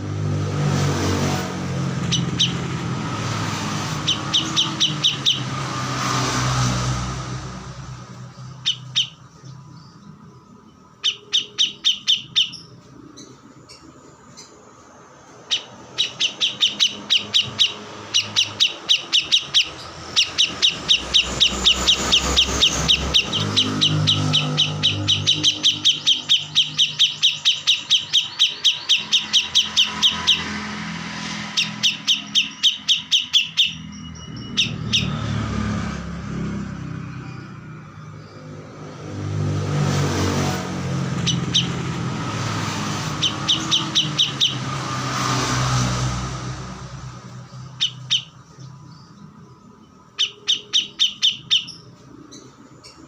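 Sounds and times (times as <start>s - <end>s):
low vehicle engine hum: 0.0s - 53.0s
songbird trilling: 1.8s - 6.4s, 8.1s - 35.5s, 41.0s - 45.5s, 47.3s - 53.0s.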